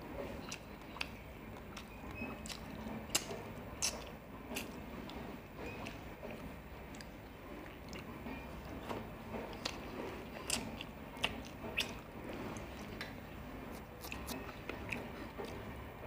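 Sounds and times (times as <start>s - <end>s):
person chewing wetly: 0.1s - 15.9s
lip smacks and clicks: 0.5s - 6.0s, 9.5s - 15.6s.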